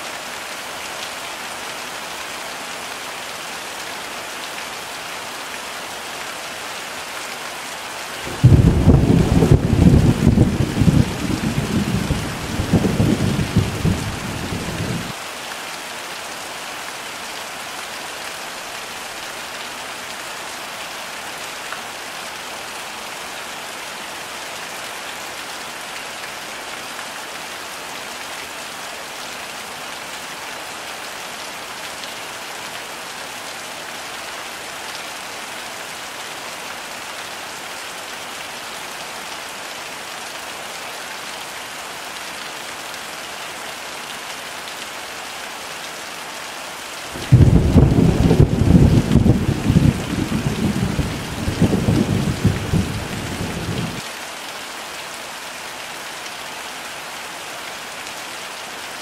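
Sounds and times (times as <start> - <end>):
heavy rain: 0.0 - 59.0
thunder rumble: 8.3 - 15.1, 47.2 - 54.0.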